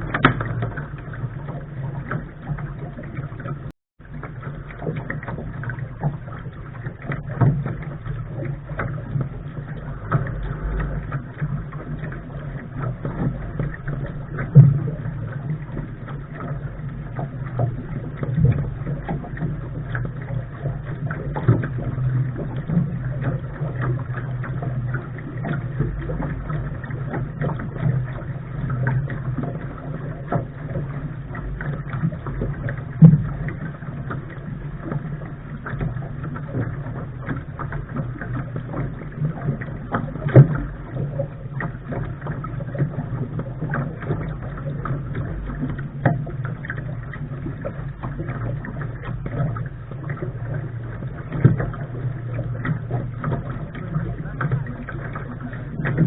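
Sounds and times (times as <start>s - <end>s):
water rushing against boat bow: 0.0s - 56.0s.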